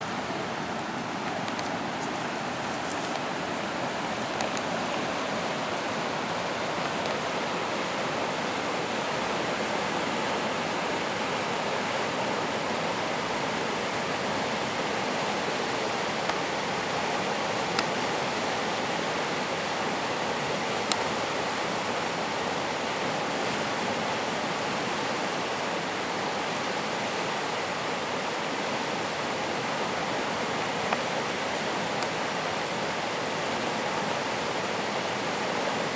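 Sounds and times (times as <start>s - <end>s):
faint clicks: 0.0s - 3.7s, 4.3s - 5.0s
fast water rushing: 0.0s - 35.9s.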